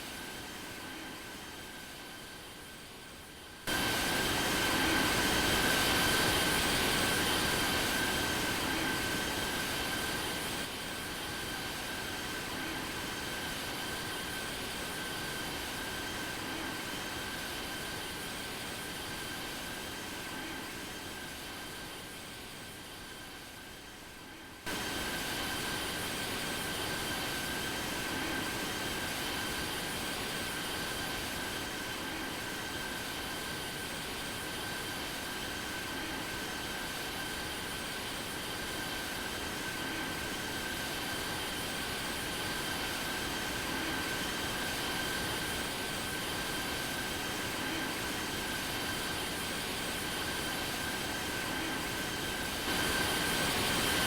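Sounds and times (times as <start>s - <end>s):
jet engines whining: 38.6s - 54.0s.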